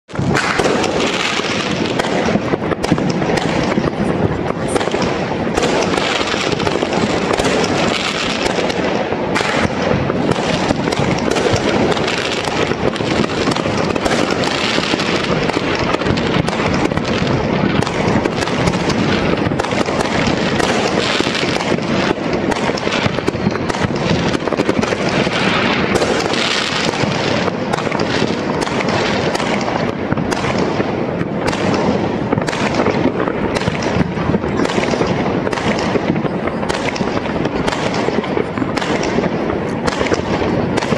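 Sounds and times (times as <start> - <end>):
fireworks and firecrackers crackling: 0.0 - 40.9.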